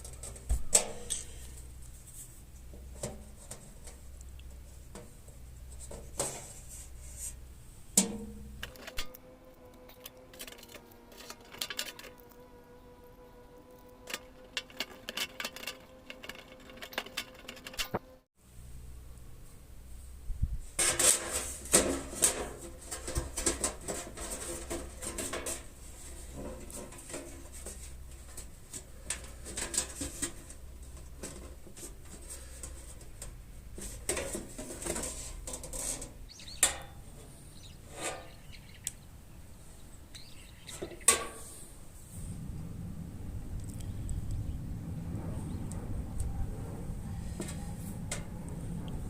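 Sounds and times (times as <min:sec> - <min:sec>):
tin can clattering and scraping: 0:00.0 - 0:04.1, 0:04.9 - 0:07.4, 0:08.0 - 0:09.2, 0:09.9 - 0:12.2, 0:14.0 - 0:18.1, 0:20.8 - 0:37.0, 0:37.9 - 0:38.4.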